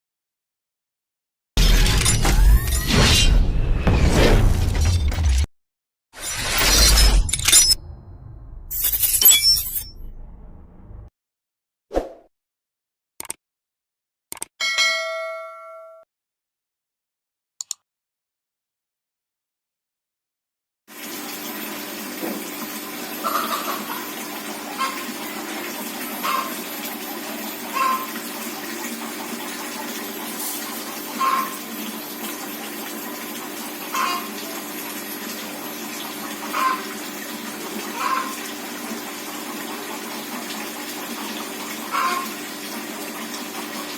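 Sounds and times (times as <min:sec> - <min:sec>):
chicken clucking: 0:23.2 - 0:24.0.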